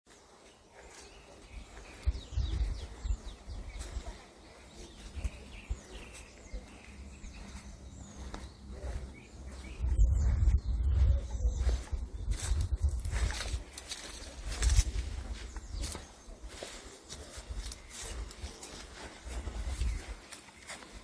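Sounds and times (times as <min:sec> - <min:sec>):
woodland birds chirping: 0:00.0 - 0:21.0
low rumbles and thumps: 0:07.0 - 0:13.6.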